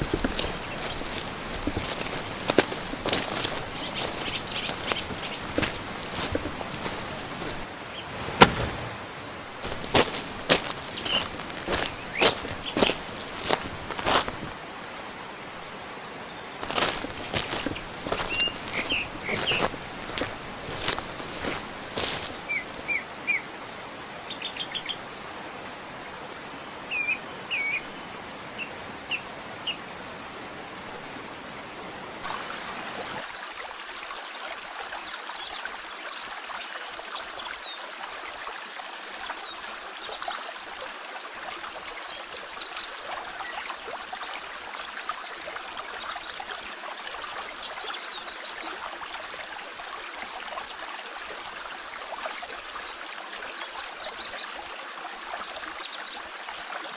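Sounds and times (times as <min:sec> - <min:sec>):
small birds chirping: 0:00.0 - 0:23.5, 0:24.3 - 0:25.1
mountain stream rushing: 0:00.0 - 0:35.4.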